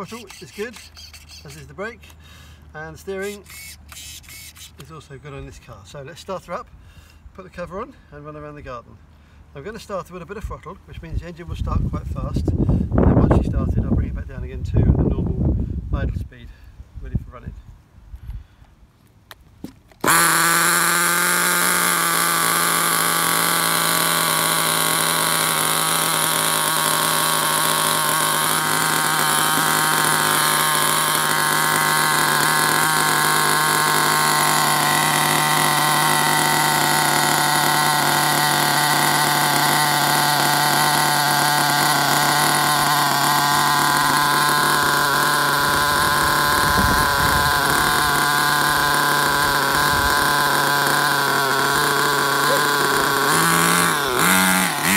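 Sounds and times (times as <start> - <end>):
small nitro engine idling: 19.6 - 54.9.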